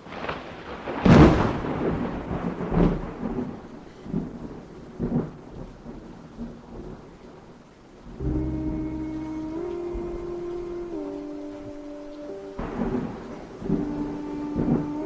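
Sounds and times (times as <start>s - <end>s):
loud thunderclap: 0.0s - 7.1s, 12.6s - 15.0s
rain falling: 0.0s - 15.0s
rolling thunder rumbles: 0.0s - 15.0s.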